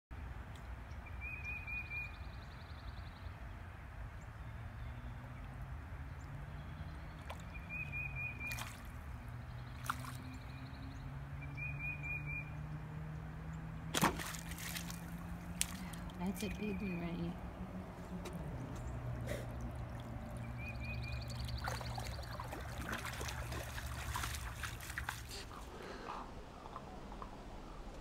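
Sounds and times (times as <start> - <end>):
faint clicks or splashes: 7.2 - 7.6, 8.4 - 9.1, 9.7 - 10.4, 13.9 - 16.2, 18.2 - 28.0
bird trilling: 20.4 - 24.3.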